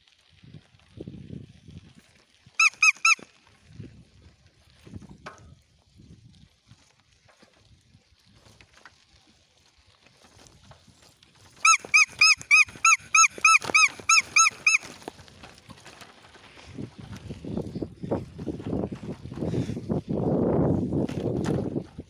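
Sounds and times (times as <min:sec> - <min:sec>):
animal giving high-pitched calls: 0:02.6 - 0:03.2, 0:11.6 - 0:15.0.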